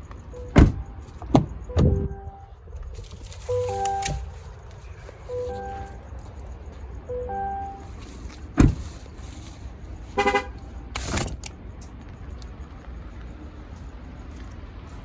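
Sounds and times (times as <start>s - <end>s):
heavy thump: 8.6s - 8.9s
vehicle horn chirp: 10.1s - 10.7s.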